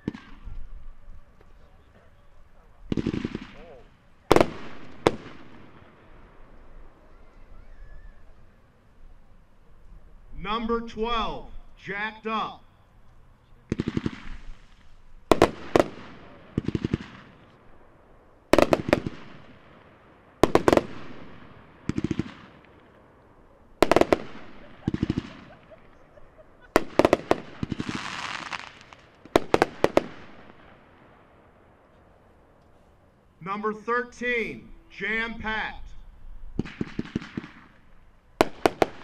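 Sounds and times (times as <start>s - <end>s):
fireworks cake firing shots: 0.0s - 0.8s, 2.9s - 7.0s, 13.6s - 23.1s, 23.8s - 31.2s, 36.5s - 39.0s
firework shells hissing: 23.8s - 30.1s.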